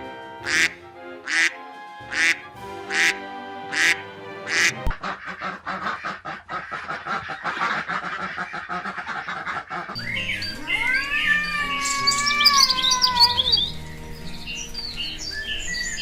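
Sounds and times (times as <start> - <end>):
ducks quacking: 0.4 - 13.7
cat meowing: 10.6 - 13.6.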